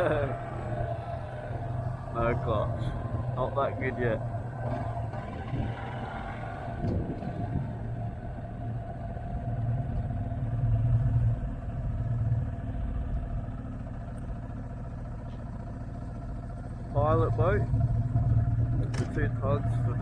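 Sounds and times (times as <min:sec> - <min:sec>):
motorcycle engine droning: 0:00.0 - 0:20.0.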